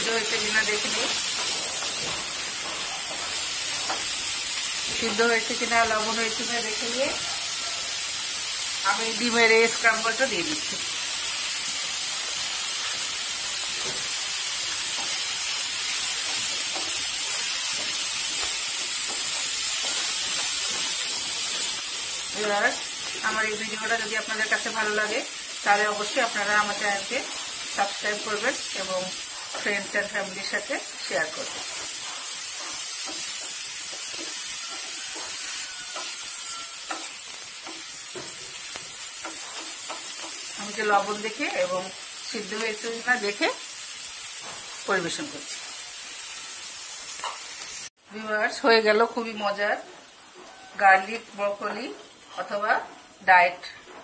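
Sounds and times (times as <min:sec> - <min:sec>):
vegetables sizzling in frying pan: 0:00.0 - 0:54.0
spatula scraping pan: 0:31.3 - 0:41.1.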